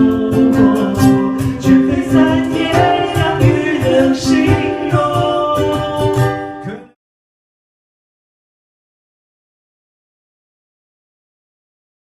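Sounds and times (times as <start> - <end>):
man singing pop song: 0.0 - 7.0
rhythmic backing music: 0.0 - 7.0.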